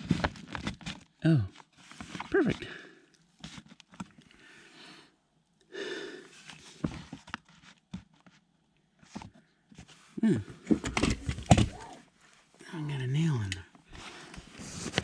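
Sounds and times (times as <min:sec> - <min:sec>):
breathy exhalations: 0:04.3 - 0:06.9
person grunting: 0:10.2 - 0:10.5.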